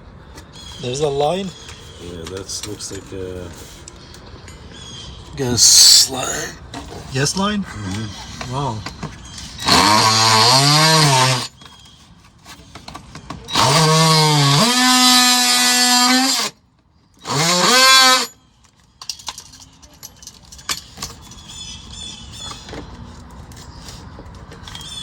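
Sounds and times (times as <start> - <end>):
power tool motor whining: 9.4 - 11.6, 13.5 - 16.6, 17.2 - 18.4
light clatter: 18.6 - 21.6.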